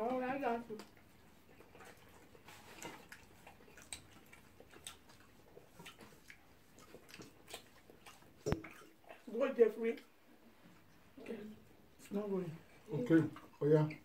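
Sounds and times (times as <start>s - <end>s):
faint chewing: 0.0s - 14.0s
wet mouth clicks: 2.6s - 9.0s.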